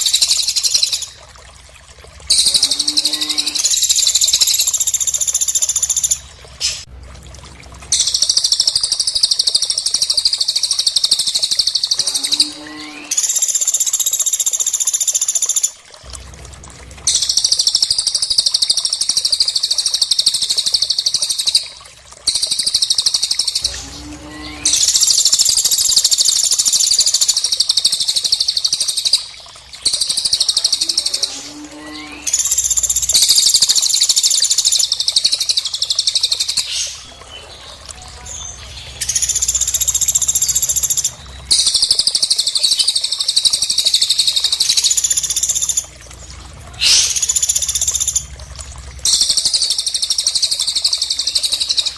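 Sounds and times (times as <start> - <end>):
high-pitched bird trilling: 2.3 - 4.6.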